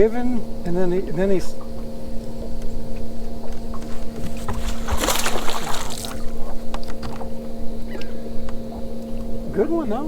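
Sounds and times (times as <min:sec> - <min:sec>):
steady hum: 0:00.0 - 0:10.0
fish splashing at water surface: 0:04.3 - 0:06.5.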